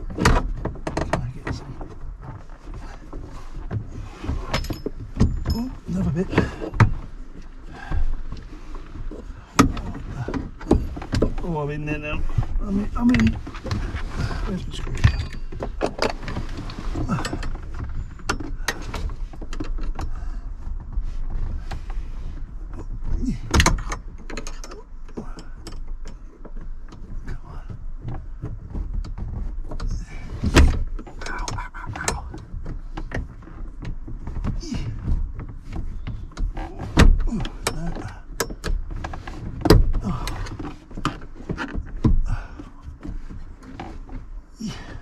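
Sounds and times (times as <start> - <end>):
tools and metal parts rattling: 4.2 - 7.2, 14.4 - 20.0.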